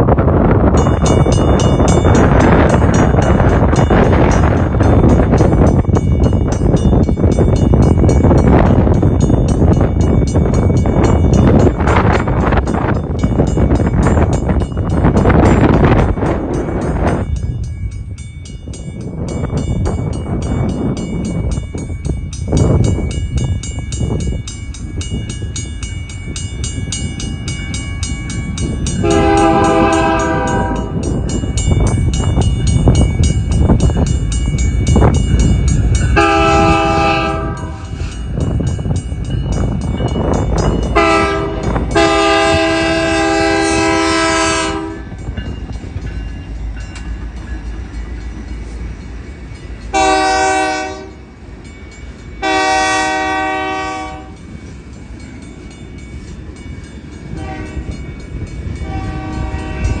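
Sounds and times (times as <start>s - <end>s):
passing train rumble: 0.0s - 60.0s
train horn blasts: 29.0s - 31.1s, 36.1s - 38.0s, 40.9s - 45.1s, 49.9s - 51.2s, 52.4s - 54.4s, 57.3s - 58.0s, 58.8s - 60.0s.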